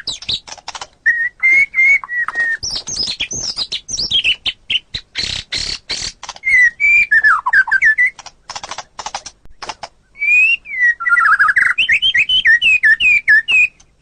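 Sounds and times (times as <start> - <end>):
quick clicking bird notes: 0.0 - 4.4, 5.0 - 10.0
harsh rasping bird notes: 0.0 - 13.8
bird whistles sliding down: 1.1 - 3.6.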